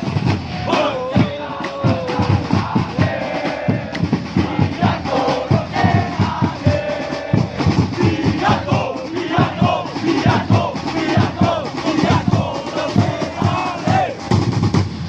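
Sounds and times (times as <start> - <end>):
crowd singing a chant: 0.0 - 14.3
drum beats: 0.0 - 15.0.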